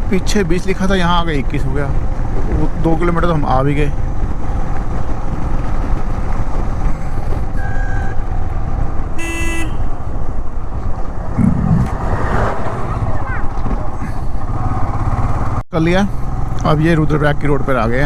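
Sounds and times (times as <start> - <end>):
motorcycle engine and road rumble: 0.0 - 18.0
vehicle horn honking: 9.2 - 10.0.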